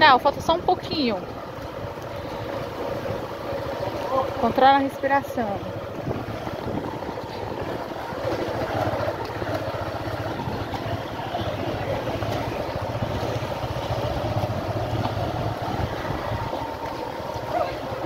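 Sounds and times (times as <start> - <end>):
vehicle engine running: 0.0 - 18.0
wind noise on microphone: 5.9 - 8.1, 10.2 - 16.8.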